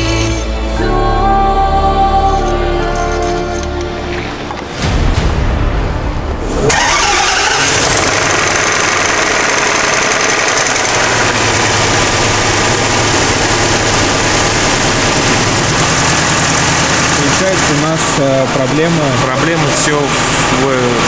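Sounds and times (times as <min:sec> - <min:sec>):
car engine idling: 0:06.6 - 0:21.0.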